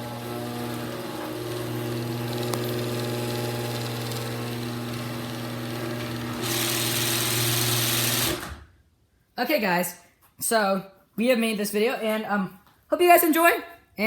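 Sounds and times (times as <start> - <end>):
garage door opener motor hum: 0.0 - 8.7.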